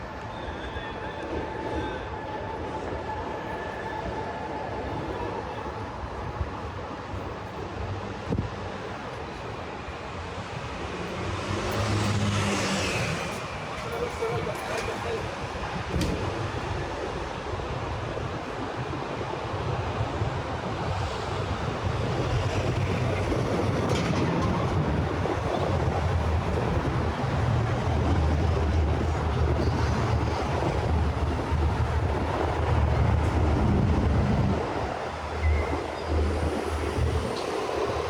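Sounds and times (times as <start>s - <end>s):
passing vehicles rumbling: 7.7s - 38.0s.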